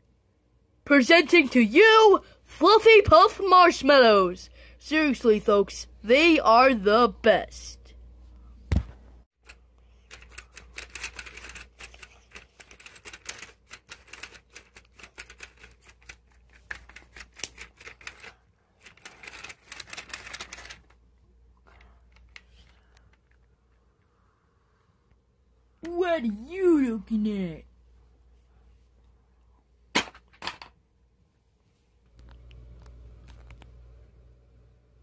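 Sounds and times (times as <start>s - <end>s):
plastic toy pieces clattering: 10.0s - 20.9s.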